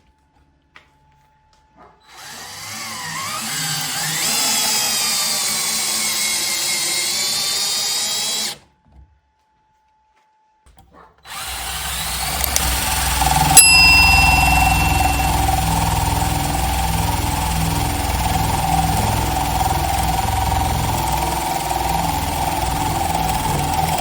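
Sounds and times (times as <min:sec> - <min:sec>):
impact driver motor whine: 0:11.3 - 0:13.6, 0:15.0 - 0:24.0.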